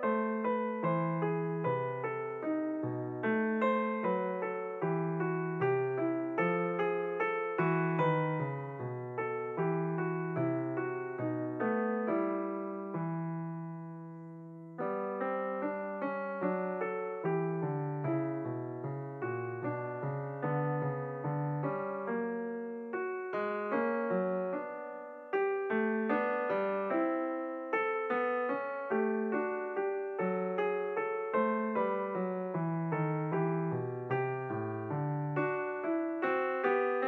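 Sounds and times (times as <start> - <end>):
slow piano music: 0.0 - 37.0.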